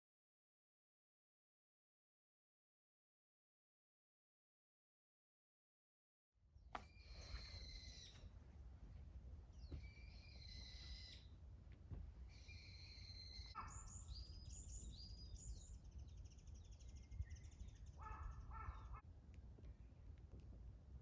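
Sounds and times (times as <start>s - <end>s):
birds chirping and trilling: 6.8s - 8.4s, 9.4s - 11.4s, 12.3s - 19.0s
low background rumble: 7.2s - 21.0s.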